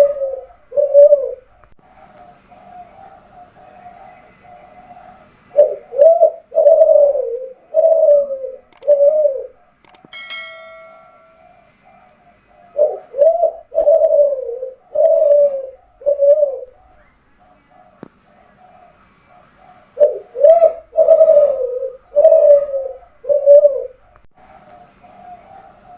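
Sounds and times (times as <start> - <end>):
dove cooing: 0.0 - 25.9
faint metallic ringing tone: 10.1 - 12.3.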